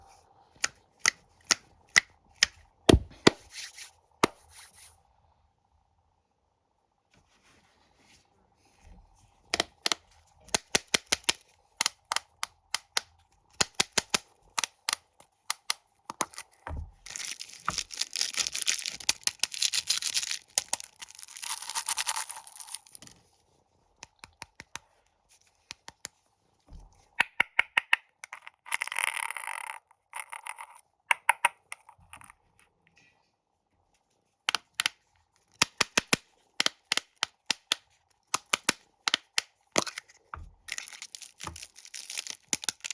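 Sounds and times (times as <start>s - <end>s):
plastic wrappers tearing: 16.2s - 23.0s, 40.7s - 42.9s
plastic wrappers crinkling: 16.2s - 23.1s, 40.7s - 42.9s.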